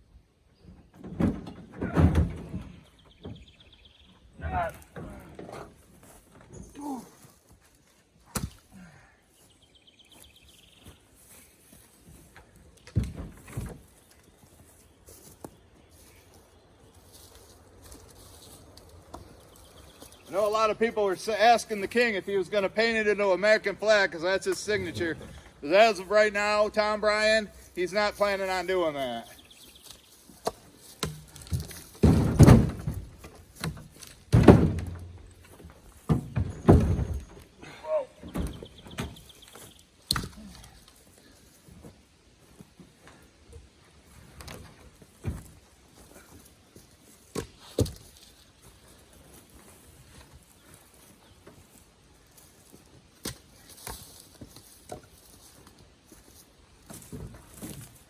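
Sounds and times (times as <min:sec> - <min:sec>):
heavy wood thunks: 0:01.0 - 0:03.5, 0:08.3 - 0:08.7, 0:12.8 - 0:14.0, 0:30.4 - 0:40.9, 0:47.2 - 0:48.2.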